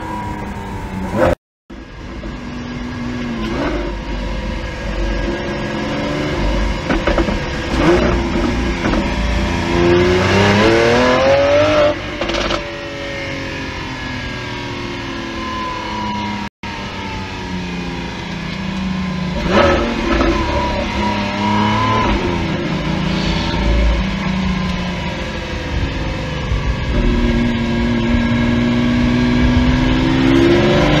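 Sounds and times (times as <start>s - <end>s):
car engine revving: 2.2s - 14.5s, 18.1s - 31.0s
sudden burst of noise: 19.6s - 28.8s.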